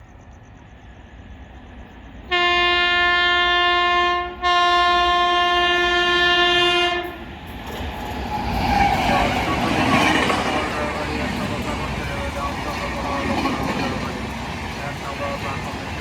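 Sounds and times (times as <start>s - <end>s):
train noise: 0.0s - 16.0s
train horn blasts: 2.3s - 7.3s.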